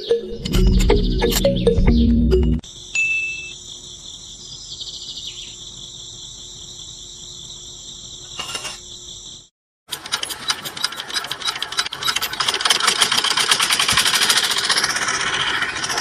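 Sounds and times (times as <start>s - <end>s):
insects chirring: 2.6s - 9.5s.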